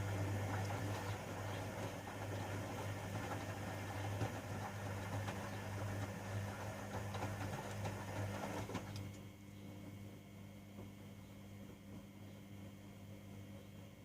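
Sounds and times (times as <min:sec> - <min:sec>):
washing machine hum: 0:00.0 - 0:14.0.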